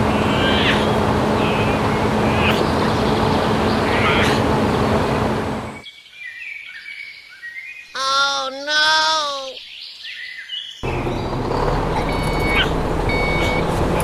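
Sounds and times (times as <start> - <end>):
drawn-out human call: 0.0 - 1.8, 8.0 - 9.6
loud steady noise with low hum: 0.0 - 5.8
birds chirping: 0.0 - 14.0.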